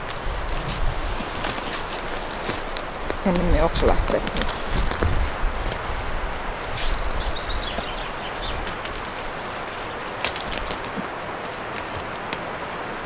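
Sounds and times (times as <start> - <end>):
steady hiss: 0.0 - 13.0
bird chirps: 6.4 - 8.6.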